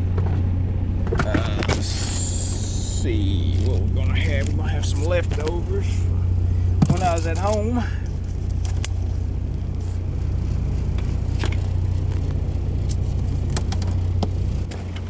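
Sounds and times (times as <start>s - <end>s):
truck engine rumble: 0.0s - 15.0s.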